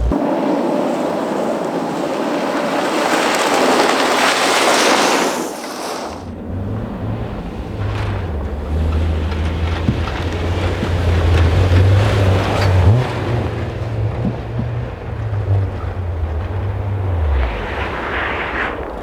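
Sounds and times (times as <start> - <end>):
low engine drone: 0.0 - 0.9, 6.3 - 19.0
tyres and wind rushing: 0.0 - 19.0.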